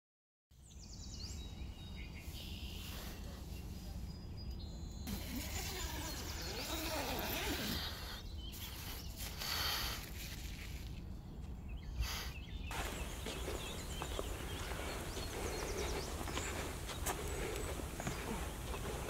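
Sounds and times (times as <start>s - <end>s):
faint bird chirps: 0.7s - 9.8s.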